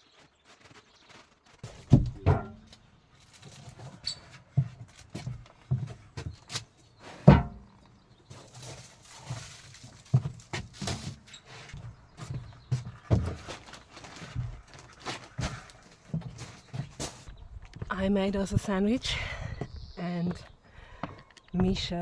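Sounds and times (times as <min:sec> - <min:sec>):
irregular thuds and knocks: 0:01.6 - 0:02.8, 0:07.2 - 0:07.7, 0:10.0 - 0:17.4.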